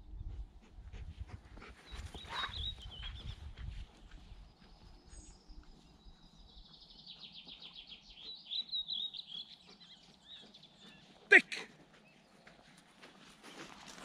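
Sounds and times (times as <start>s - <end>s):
songbird singing: 0.0s - 14.0s.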